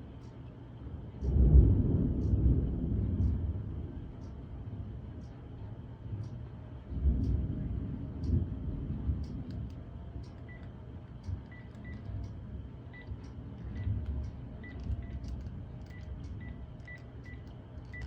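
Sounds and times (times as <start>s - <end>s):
faint rain ticking: 0.1s - 18.0s
thunder rumbling: 1.2s - 5.1s, 6.9s - 9.7s.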